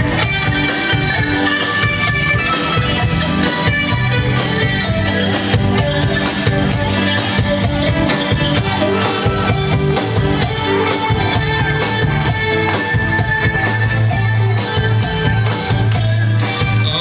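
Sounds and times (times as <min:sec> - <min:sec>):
drum beat: 0:00.0 - 0:17.0
electric guitar: 0:00.0 - 0:17.0.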